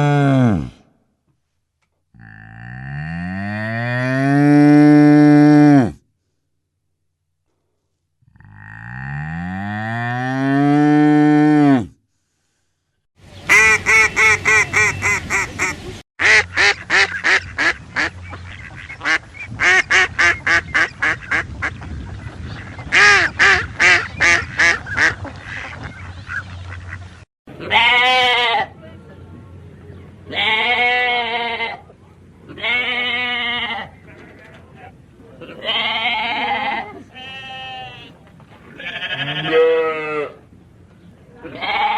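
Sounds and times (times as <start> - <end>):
bull mooing: 2.2 - 6.0
duck quacking: 13.4 - 21.8, 22.9 - 27.1.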